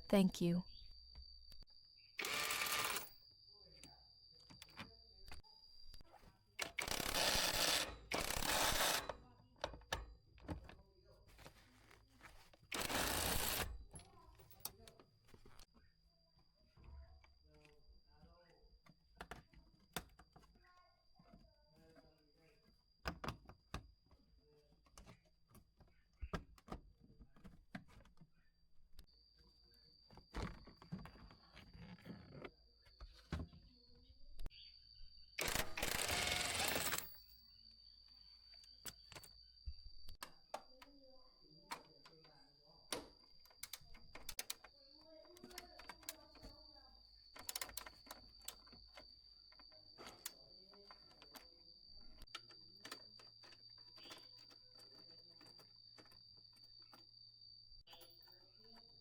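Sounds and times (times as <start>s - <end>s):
faint high-pitched tone: 0.0s - 0.8s
tools clicking and clacking: 43.5s - 44.7s, 47.3s - 49.1s.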